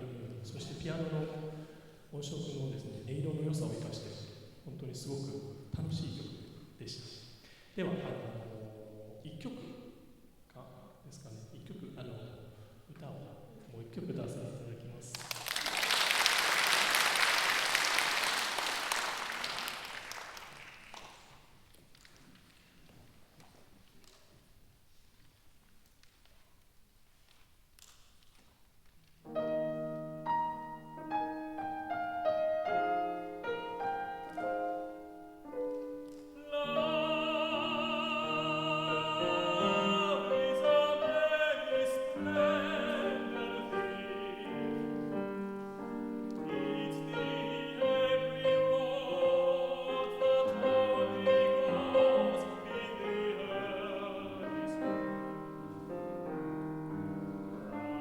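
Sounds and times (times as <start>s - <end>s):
piano: 0.0s - 26.4s, 28.3s - 58.0s
tenor singing with vibrato: 36.3s - 45.4s, 46.0s - 56.1s.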